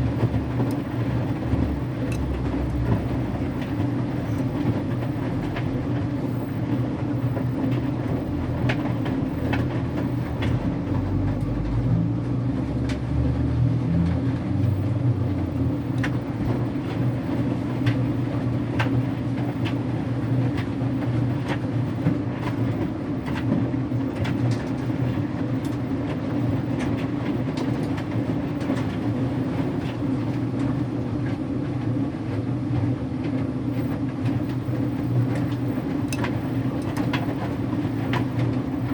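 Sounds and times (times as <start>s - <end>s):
deep rumble: 0.0s - 18.4s
washing machine humming: 0.0s - 38.9s.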